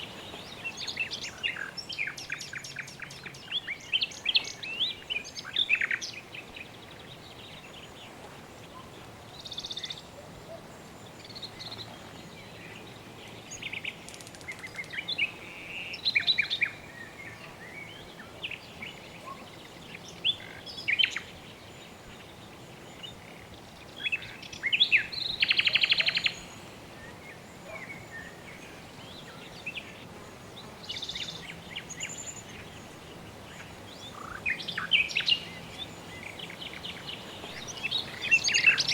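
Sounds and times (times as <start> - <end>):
birds chirping: 0.0 - 38.9
faint background hiss: 0.0 - 38.9.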